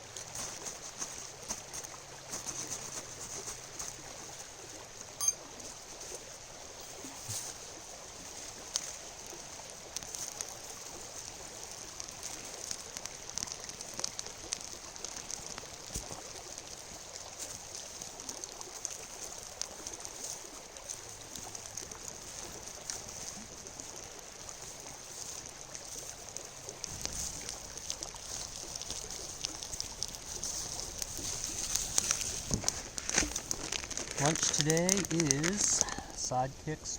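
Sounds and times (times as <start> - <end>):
river flowing: 0.0 - 36.7
small clicks and ticks: 8.3 - 36.4.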